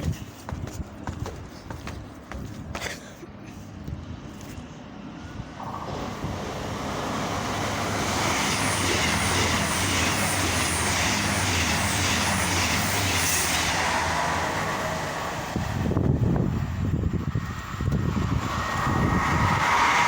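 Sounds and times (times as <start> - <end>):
train moving past: 4.0 - 20.0.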